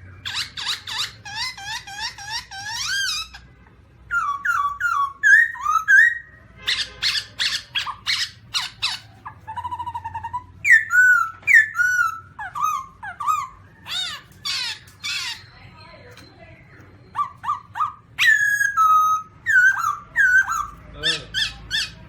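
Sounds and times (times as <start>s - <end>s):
laughingthrush whistled calls: 0.0s - 3.5s, 4.1s - 16.3s, 17.0s - 22.0s.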